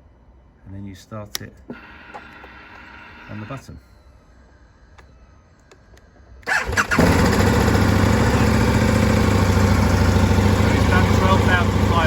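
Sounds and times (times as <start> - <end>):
motorcycle engine starting and idling: 5.8 - 12.0.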